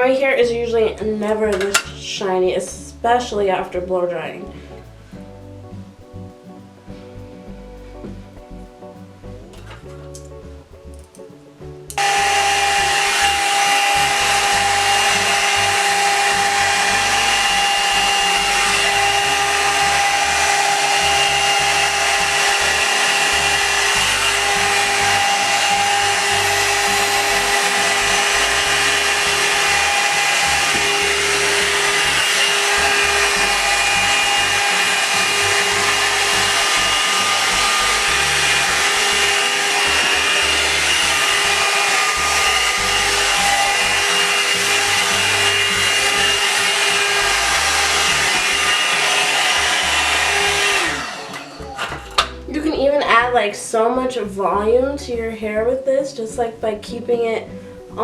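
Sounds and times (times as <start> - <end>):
hair dryer running: 1.4 - 2.0, 11.9 - 52.5.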